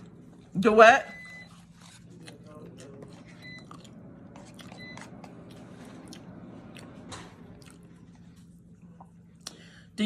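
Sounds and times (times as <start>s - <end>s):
chewing and mouth smacks: 1.4s - 6.9s, 7.5s - 9.6s.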